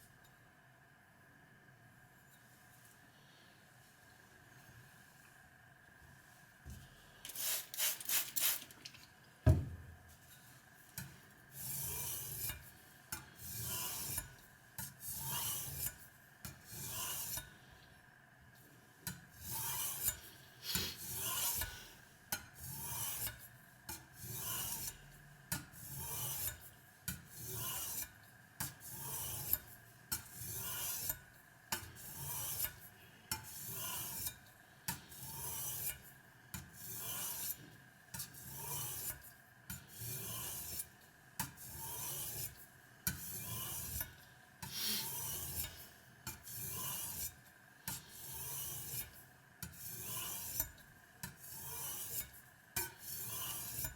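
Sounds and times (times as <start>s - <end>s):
knife scraping on whetstone: 11.0s - 17.5s, 19.4s - 21.9s, 22.6s - 23.4s, 24.2s - 25.1s, 25.7s - 31.2s, 31.8s - 32.8s, 33.4s - 37.6s, 38.2s - 39.2s, 39.8s - 53.9s.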